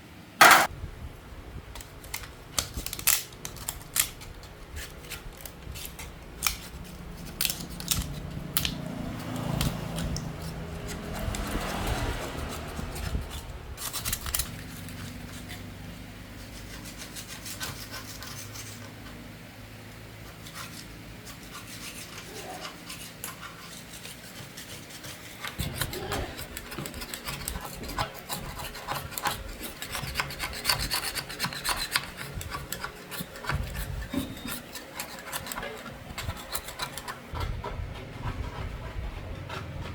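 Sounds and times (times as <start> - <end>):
hand tool rasping on rusty metal: 21.2 - 39.9.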